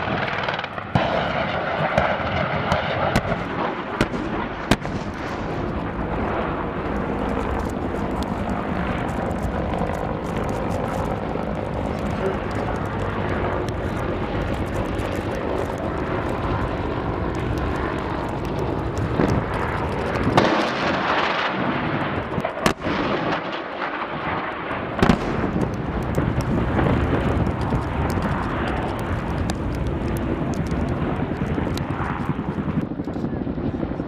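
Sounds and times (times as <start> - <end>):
sharp bangs of weapons fire: 0.0 - 5.5, 20.3 - 25.7
helicopter engine and rotor: 1.4 - 22.6, 25.3 - 34.0.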